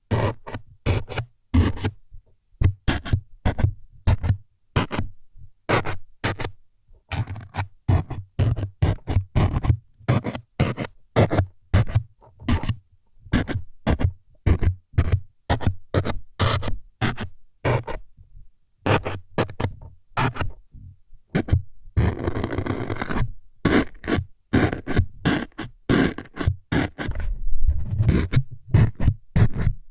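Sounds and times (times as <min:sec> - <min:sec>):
scraping jabs against microphone: 0:27.0 - 0:29.8.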